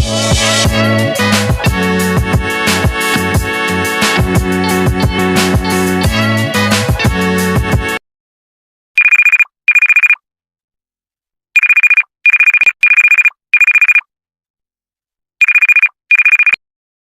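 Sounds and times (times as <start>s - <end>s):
trilling telephone ringtone: 9.0s - 10.2s, 11.6s - 14.1s, 15.4s - 16.6s.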